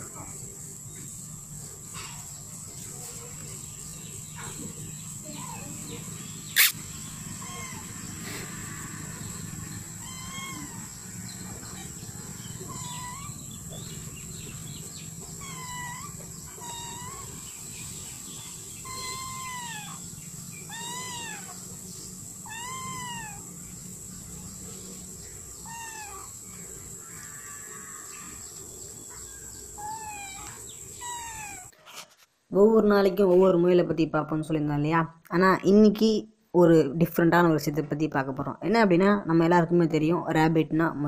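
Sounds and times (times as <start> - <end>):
animal calling: 4.4 - 24.0, 25.2 - 31.8.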